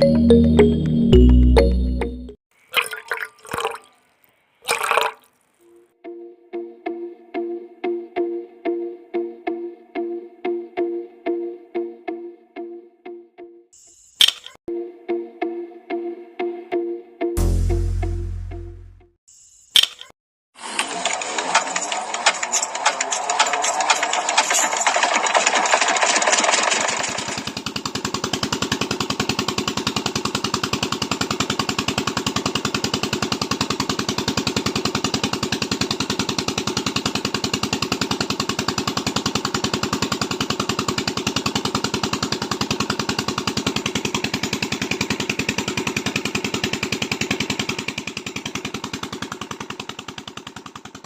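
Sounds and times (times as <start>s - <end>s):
toy engine water pump chugging: 4.7s - 5.3s, 20.6s - 51.0s.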